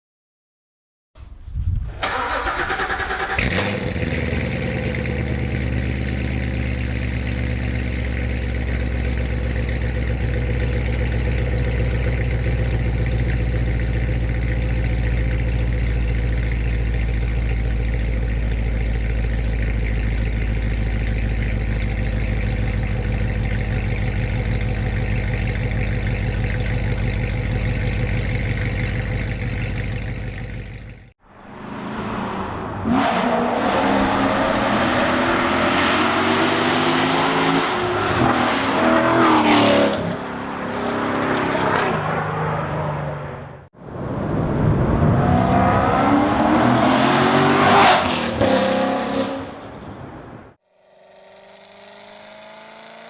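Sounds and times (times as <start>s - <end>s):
car engine starting and idling: 1.9s - 36.6s.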